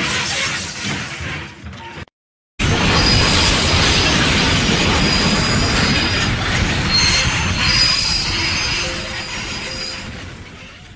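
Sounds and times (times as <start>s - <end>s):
train rumbling: 2.6s - 10.9s
high-pitched squealing: 2.9s - 10.9s.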